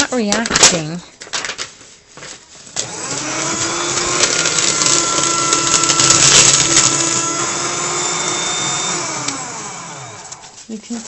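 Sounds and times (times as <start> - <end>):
paper shredder cutting paper: 2.7 - 11.0.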